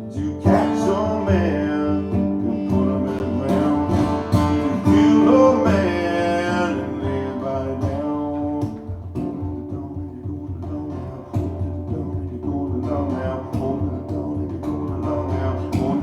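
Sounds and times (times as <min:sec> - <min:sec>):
guitar instrumental: 0:00.0 - 0:16.0.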